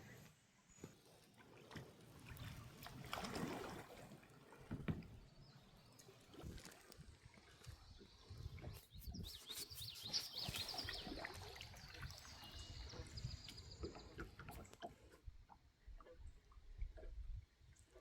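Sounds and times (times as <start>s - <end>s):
birds chirping and whistling: 9.0s - 14.0s.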